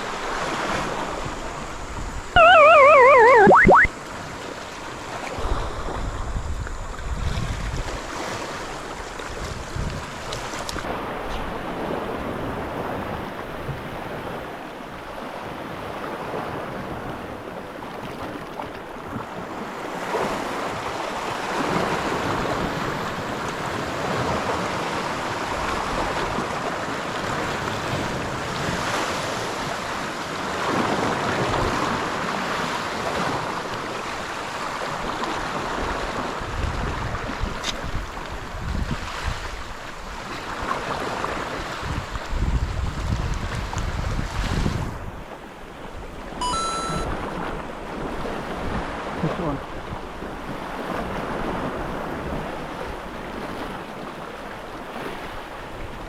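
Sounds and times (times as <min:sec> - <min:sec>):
wind gusting over microphone: 0:35.8 - 0:40.2, 0:41.4 - 0:45.2.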